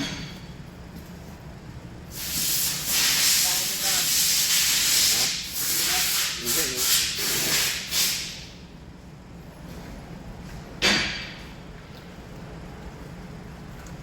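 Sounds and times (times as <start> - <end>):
loud steady hiss: 2.1 - 8.5.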